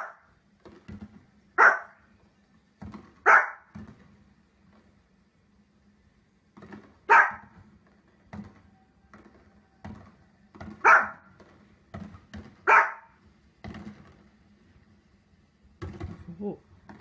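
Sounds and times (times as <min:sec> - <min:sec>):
small dog barking: 0:00.0 - 0:00.3, 0:01.6 - 0:02.0, 0:03.2 - 0:03.7, 0:07.0 - 0:07.6, 0:10.8 - 0:11.3, 0:12.6 - 0:13.2.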